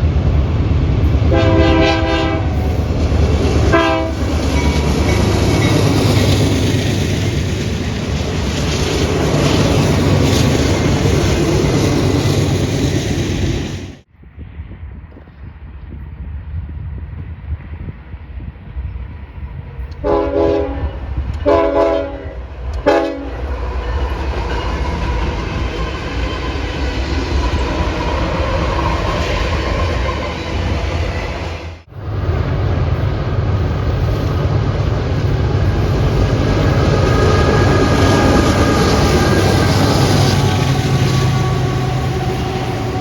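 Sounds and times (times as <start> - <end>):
train rumbling past: 0.0 - 43.0
locomotive air horn blasts: 1.3 - 2.9, 3.6 - 4.5, 20.0 - 23.4, 38.9 - 43.0.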